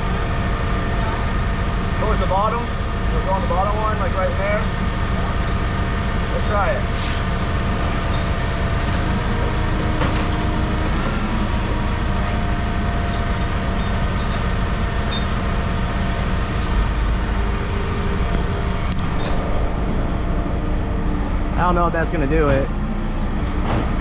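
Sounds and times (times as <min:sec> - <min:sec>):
heavy machinery drone: 0:00.0 - 0:24.0.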